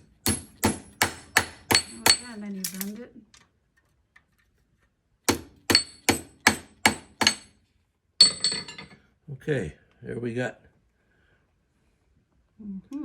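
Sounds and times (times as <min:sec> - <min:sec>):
hammer striking steel: 0:00.0 - 0:02.4, 0:05.3 - 0:07.5.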